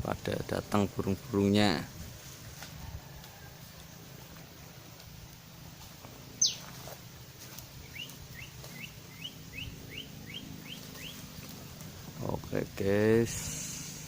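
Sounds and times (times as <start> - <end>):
short rising bird chirps: 6.4 - 6.7.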